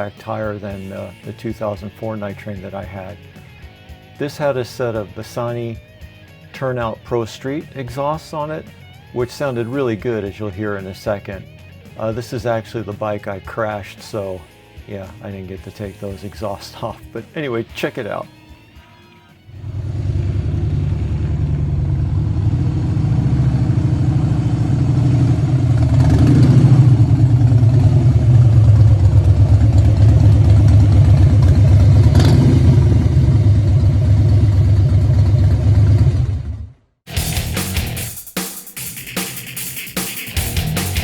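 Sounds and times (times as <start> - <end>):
music: 0.0 - 20.0, 37.1 - 41.0
motorcycle exhaust pulsing: 19.5 - 37.9.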